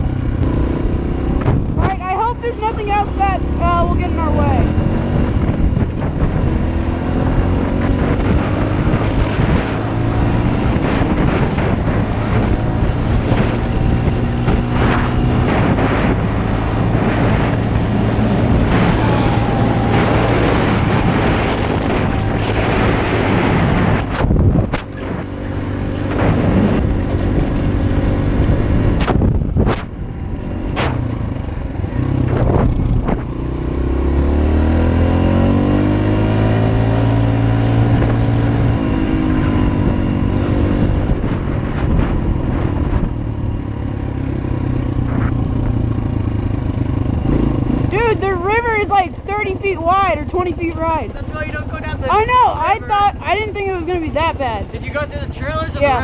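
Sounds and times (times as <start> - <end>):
dirt bike engine: 0.0 - 56.0
rushing noise: 7.7 - 33.0.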